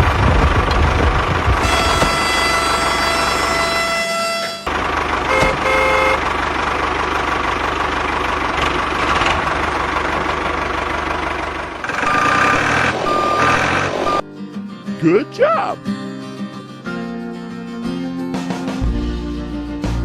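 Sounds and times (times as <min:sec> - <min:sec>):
tractor engine running: 0:00.0 - 0:14.2
horn toots: 0:01.6 - 0:04.7, 0:05.3 - 0:06.3.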